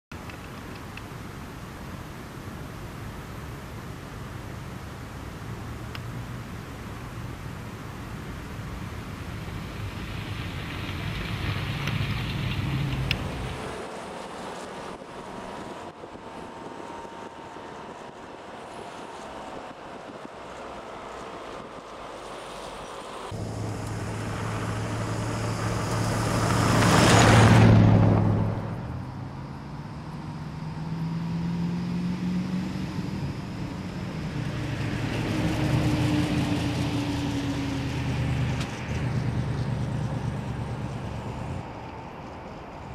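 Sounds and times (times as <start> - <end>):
car engine passing by: 8.6 - 42.9.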